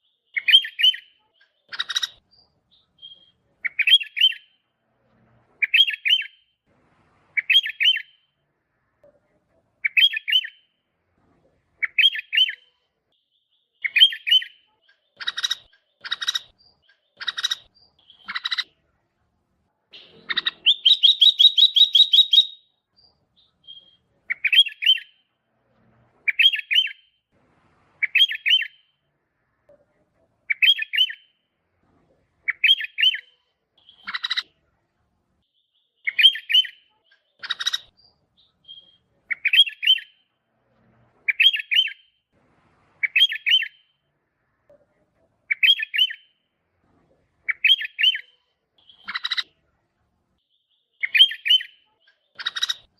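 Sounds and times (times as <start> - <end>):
bulbul singing: 0.0 - 4.7, 7.4 - 8.4, 9.8 - 10.8, 11.8 - 18.8, 19.9 - 25.4, 26.3 - 27.2, 28.0 - 29.0, 30.5 - 31.5, 32.4 - 34.5, 35.4 - 40.3, 43.0 - 44.0, 45.5 - 46.5, 47.4 - 49.5, 50.4 - 52.9.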